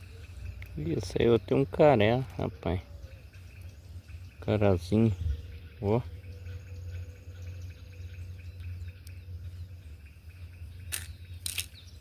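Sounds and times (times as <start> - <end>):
faint insect calls: 0.0 - 12.0
low rumble: 5.1 - 11.9.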